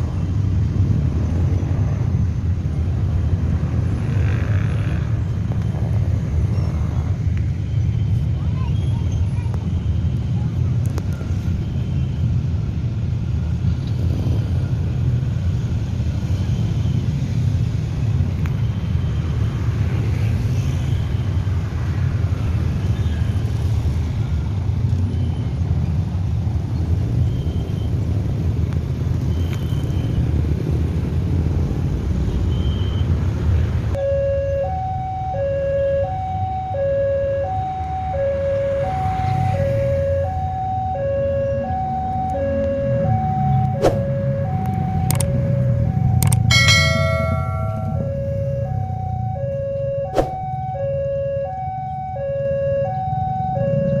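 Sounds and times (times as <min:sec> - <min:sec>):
rumble of vehicles: 0:00.0 - 0:54.0
two-tone crossing warning alarm: 0:34.0 - 0:54.0.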